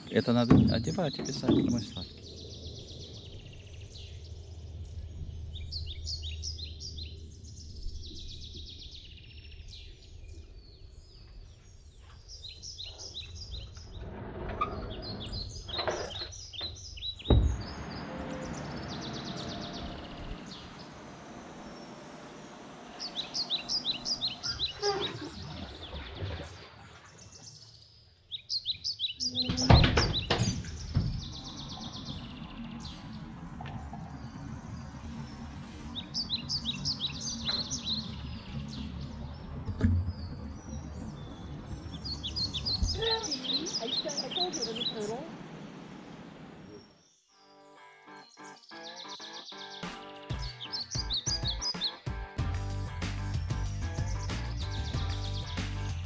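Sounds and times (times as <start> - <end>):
small birds chirping: 0.0 - 52.3, 53.1 - 56.0
dull thumps: 0.4 - 2.0, 17.2 - 17.9.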